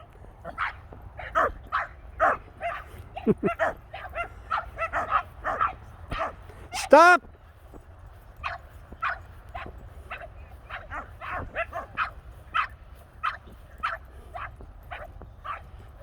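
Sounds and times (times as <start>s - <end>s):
dog barking sharply: 3.6s - 7.2s.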